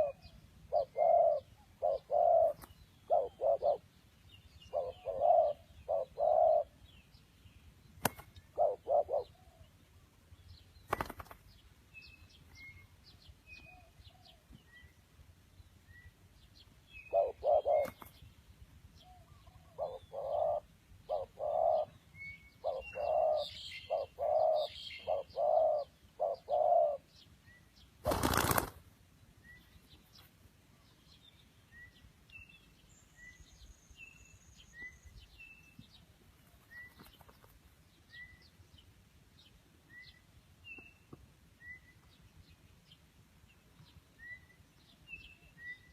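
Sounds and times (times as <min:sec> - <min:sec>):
dove cooing: 0:00.0 - 0:03.9, 0:04.7 - 0:06.8, 0:08.5 - 0:09.6, 0:17.1 - 0:18.0, 0:19.1 - 0:22.0, 0:22.6 - 0:27.1
small bird chirping faintly: 0:29.4 - 0:45.9.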